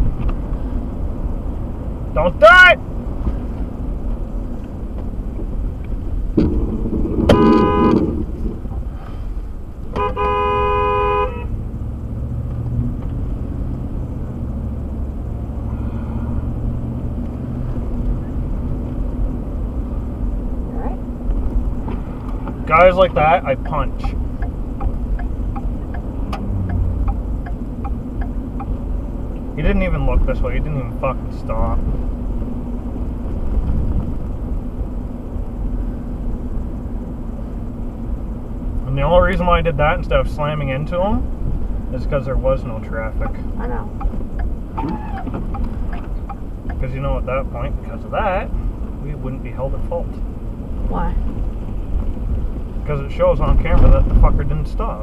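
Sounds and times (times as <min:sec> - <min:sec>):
car engine and tyres rumbling: 0:00.0 - 0:55.0
car horn: 0:07.1 - 0:08.4, 0:09.9 - 0:11.6.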